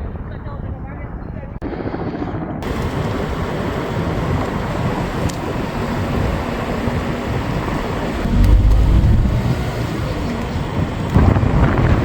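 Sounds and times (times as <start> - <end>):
loud steady rumbling: 2.6 - 12.0.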